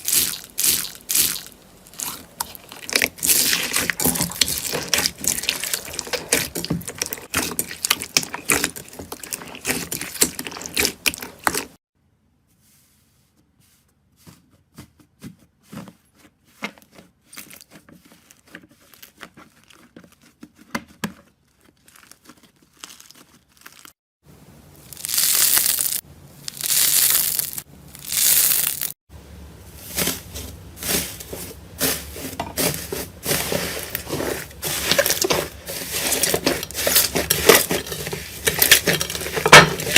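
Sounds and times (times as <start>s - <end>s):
slime crackling and crunching: 0.0s - 11.8s, 21.4s - 24.0s, 24.8s - 29.0s, 29.8s - 39.9s.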